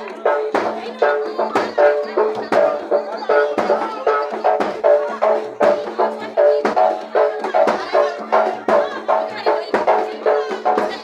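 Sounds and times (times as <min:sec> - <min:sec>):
drums and gongs in steady beat: 0:00.0 - 0:11.0.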